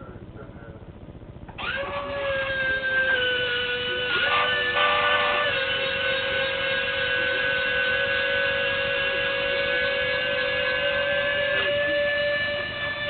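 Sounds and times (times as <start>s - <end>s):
landing gear motor whine: 0.0s - 13.0s.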